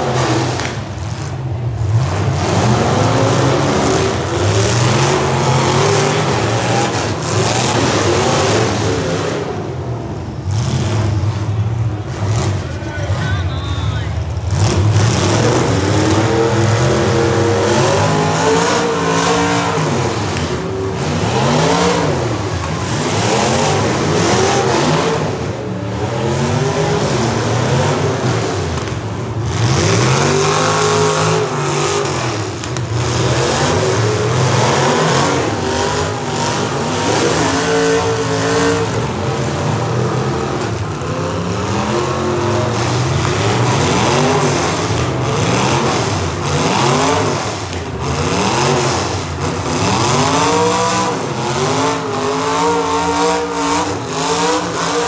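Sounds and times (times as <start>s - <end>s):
car engines revving: 0.0s - 55.0s
cars colliding: 14.1s - 54.9s.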